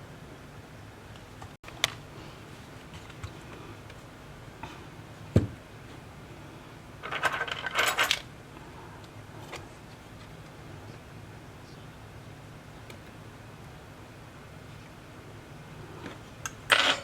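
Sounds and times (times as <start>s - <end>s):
dull knock: 5.4s - 5.6s.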